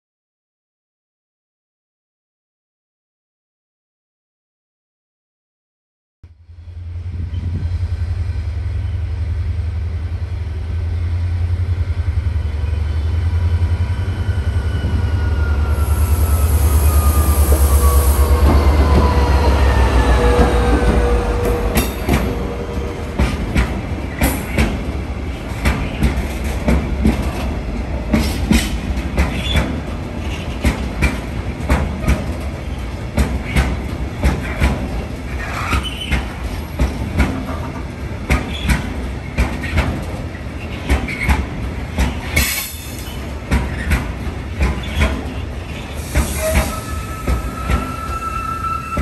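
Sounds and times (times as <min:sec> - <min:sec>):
wheels rumbling on track: 0:06.4 - 0:49.0
high wheel squeals: 0:13.4 - 0:23.0, 0:45.7 - 0:49.0
wheels clacking over rail joints: 0:17.6 - 0:46.8.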